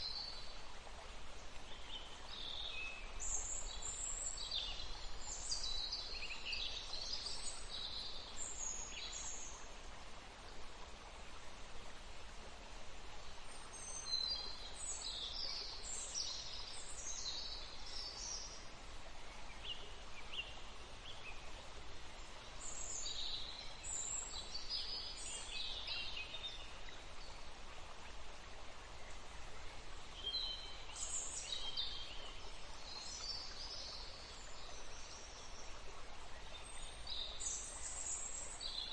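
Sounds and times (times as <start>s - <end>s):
outdoor background hiss: 0.0s - 38.9s
songbird chirping: 13.2s - 38.9s.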